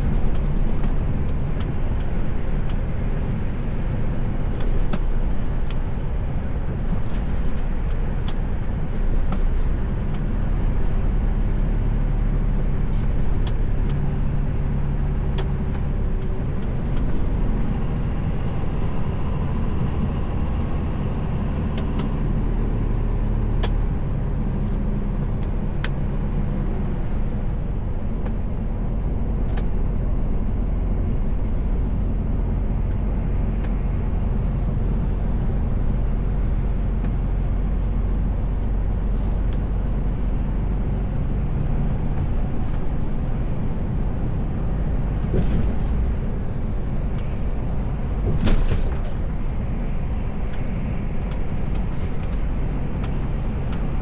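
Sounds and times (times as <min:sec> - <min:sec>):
diesel engine drone: 0:00.0 - 0:54.0
road and tyre noise: 0:00.0 - 0:54.0.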